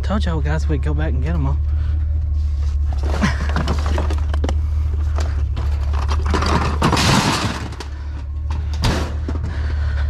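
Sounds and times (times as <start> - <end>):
low hum: 0.0 - 10.0
crash and clatter: 5.2 - 8.0.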